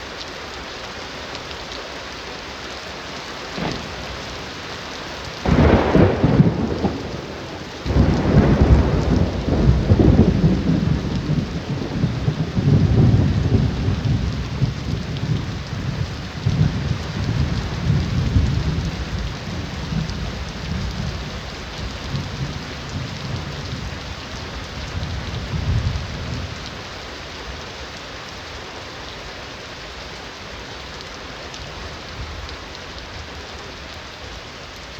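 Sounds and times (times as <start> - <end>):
heavy rain falling: 0.0 - 34.9
thunder clap and rumble: 3.5 - 26.8.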